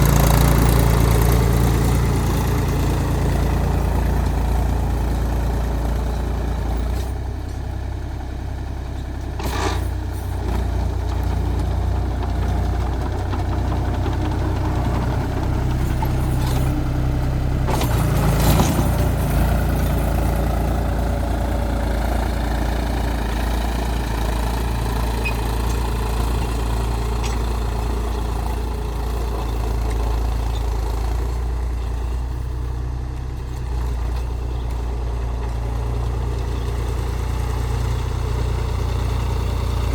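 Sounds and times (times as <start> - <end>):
tractor diesel engine running: 0.0 - 39.9
clatter: 9.1 - 17.0, 17.6 - 39.9.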